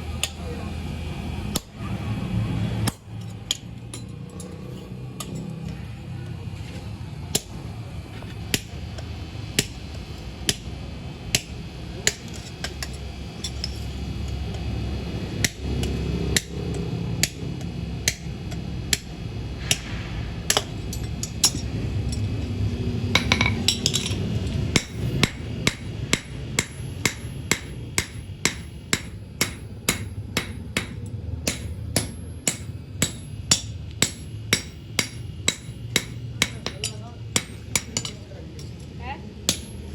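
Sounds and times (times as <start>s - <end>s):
continuous low hum: 0.0s - 39.9s
hammer striking steel on anvil: 7.3s - 7.6s, 8.5s - 9.9s, 11.3s - 14.6s, 15.4s - 16.6s, 17.2s - 21.7s, 23.2s - 38.7s, 39.4s - 39.9s.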